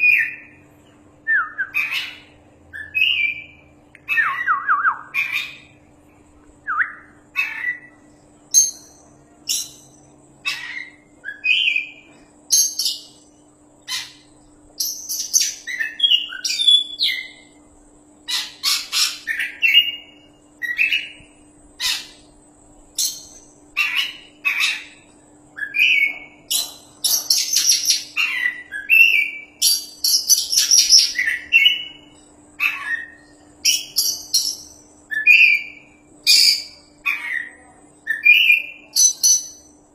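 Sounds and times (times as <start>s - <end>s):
faint steady hum: 0.0s - 39.9s
songbird singing varied whistles: 1.3s - 5.6s, 14.8s - 17.5s.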